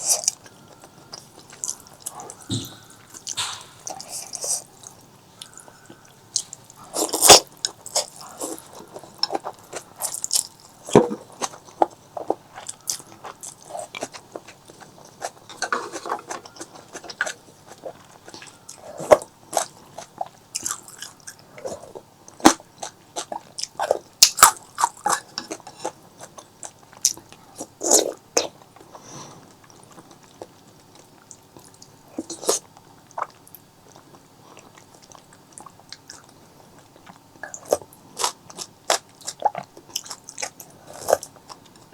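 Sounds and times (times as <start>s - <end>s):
person chewing food: 0.0s - 41.9s.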